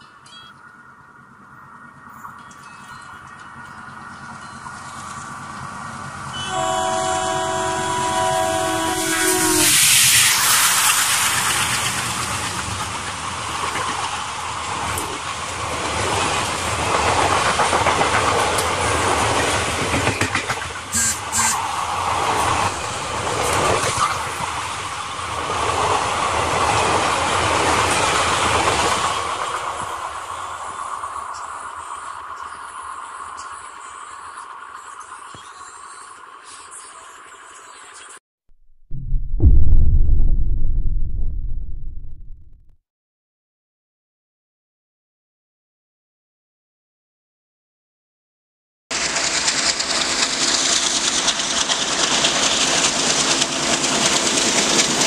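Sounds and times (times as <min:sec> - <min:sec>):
train rushing past: 0:04.4 - 0:31.1
train horn: 0:06.3 - 0:09.9, 0:20.9 - 0:21.8.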